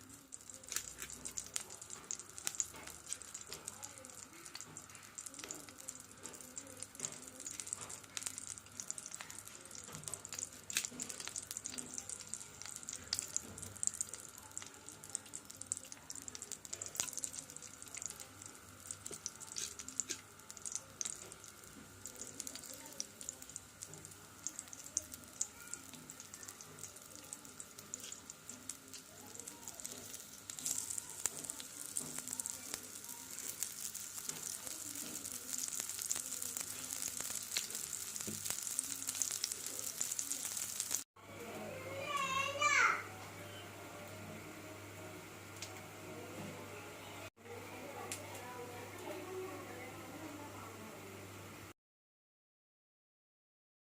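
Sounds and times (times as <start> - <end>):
potatoes sizzling in oil: 0.0 - 43.0.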